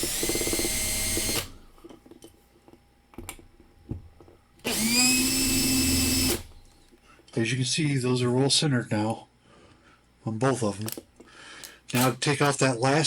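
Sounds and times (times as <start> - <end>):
hand drill whining: 0.0 - 1.6, 4.6 - 6.8.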